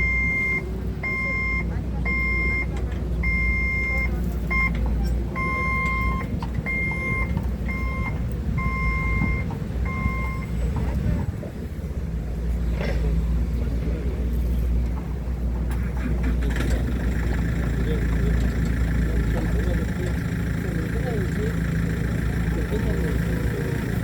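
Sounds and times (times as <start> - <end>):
forklift reverse warning beeps: 0.0 - 11.0, 16.9 - 24.0.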